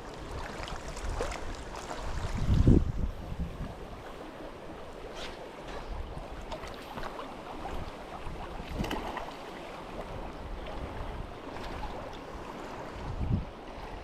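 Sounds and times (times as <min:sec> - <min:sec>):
wind buffeting microphone: 0:00.0 - 0:04.2, 0:10.0 - 0:14.0
river water splashing and gurgling: 0:00.0 - 0:14.0.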